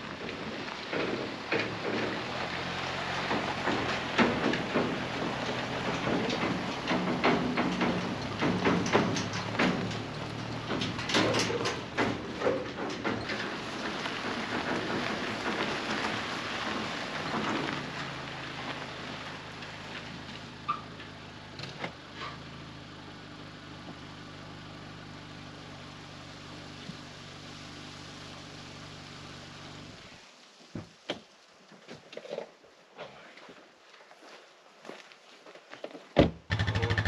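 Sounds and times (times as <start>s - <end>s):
vehicle engine running: 0.0s - 30.2s, 36.5s - 37.0s
clicks and knocks: 3.2s - 15.7s.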